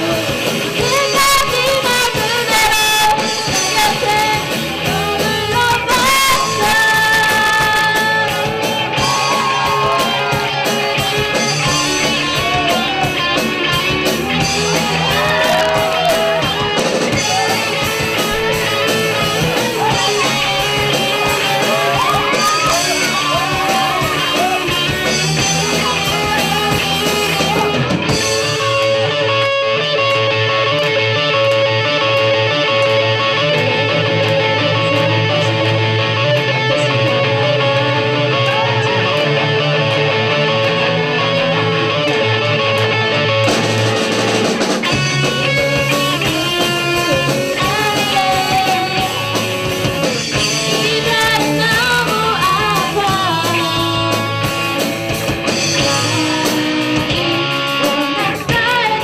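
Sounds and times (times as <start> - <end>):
lead singer singing: 0.0 - 10.3, 14.5 - 27.9, 45.5 - 49.4, 50.4 - 54.5, 55.8 - 59.0
drums: 0.0 - 59.0
guitar: 0.0 - 59.0.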